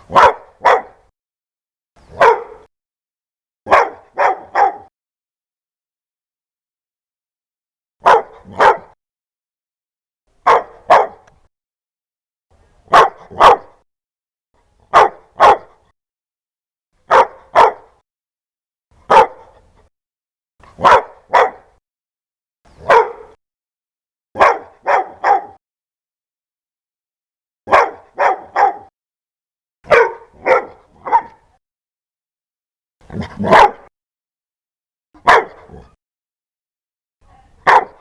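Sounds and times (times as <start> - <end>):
dog barking: 0.1 - 1.1, 2.1 - 2.7, 3.7 - 4.9, 8.0 - 9.0, 10.4 - 11.3, 12.9 - 13.8, 14.9 - 15.9, 17.0 - 18.0, 19.0 - 19.6, 20.8 - 21.8, 22.8 - 23.4, 24.4 - 25.6, 27.7 - 28.9, 29.8 - 31.6, 33.1 - 33.9, 35.2 - 36.0, 37.3 - 38.0.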